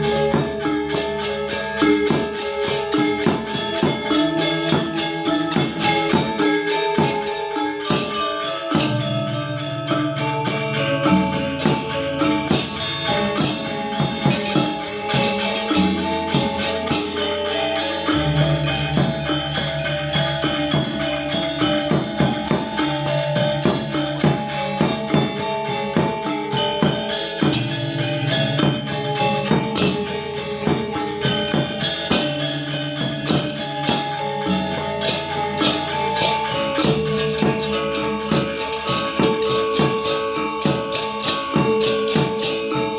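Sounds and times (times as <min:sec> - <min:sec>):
metallophones in fast strokes: 0:00.0 - 0:42.9
shimmering cymbals: 0:00.0 - 0:42.9.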